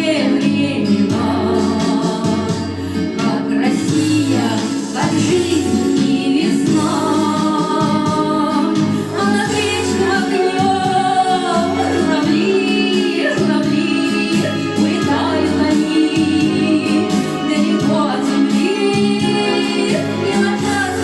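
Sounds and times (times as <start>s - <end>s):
steady bass notes: 0.0s - 12.6s, 19.1s - 21.0s
instrumental accompaniment: 0.0s - 21.0s
women singing: 0.0s - 21.0s.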